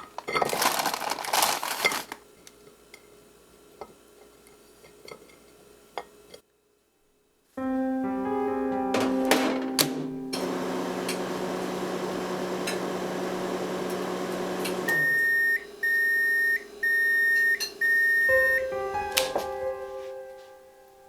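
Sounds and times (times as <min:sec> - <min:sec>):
microwave oven humming: 0:08.7 - 0:18.7
microwave long beeps: 0:10.4 - 0:18.8.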